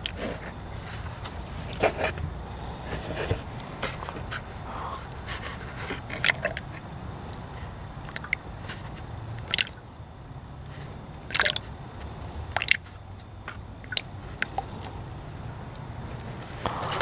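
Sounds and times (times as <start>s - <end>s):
oil dripping into a pan: 8.0s - 8.5s, 9.3s - 9.8s, 11.3s - 11.7s.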